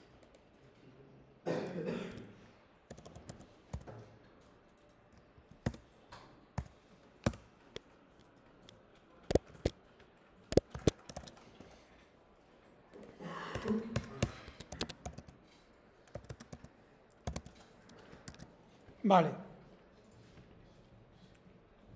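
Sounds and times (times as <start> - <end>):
typing on a computer keyboard: 2.9 - 11.8, 13.4 - 18.6.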